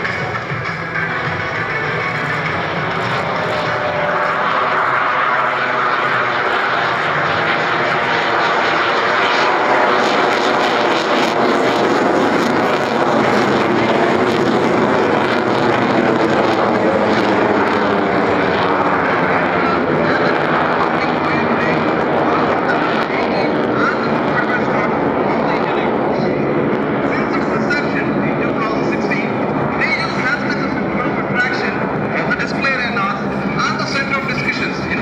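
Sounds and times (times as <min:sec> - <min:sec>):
fighter jet flying overhead: 0:00.0 - 0:35.0.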